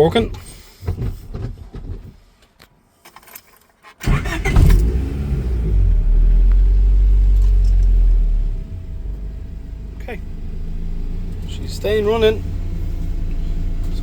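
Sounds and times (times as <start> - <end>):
car engine starting and idling: 4.0 - 14.0.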